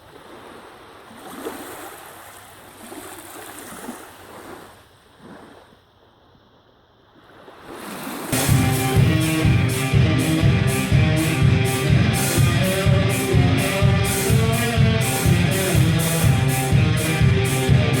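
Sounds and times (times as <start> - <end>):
electric blues-rock guitar riff: 8.4 - 18.0
steady driving beat: 8.4 - 18.0.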